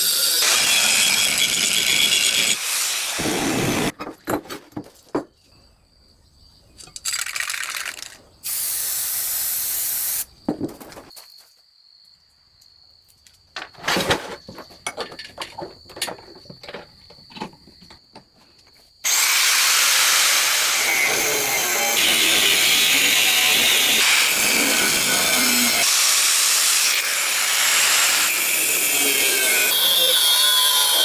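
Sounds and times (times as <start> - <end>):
bursts of hiss: 8.4 - 10.3.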